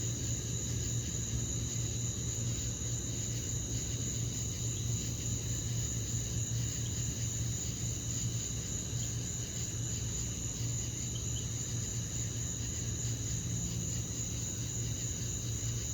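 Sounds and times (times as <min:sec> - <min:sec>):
crickets chirping: 0:00.0 - 0:15.9.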